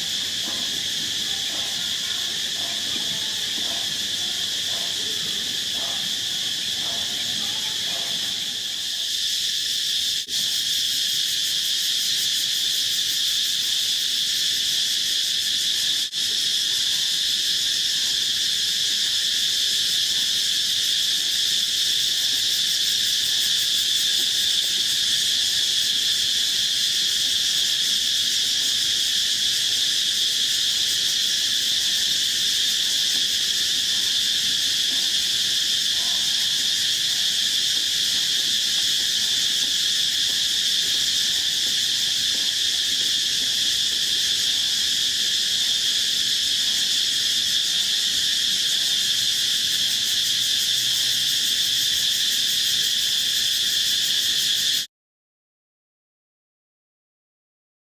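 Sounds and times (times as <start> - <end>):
insects trilling: 0.0 - 54.9.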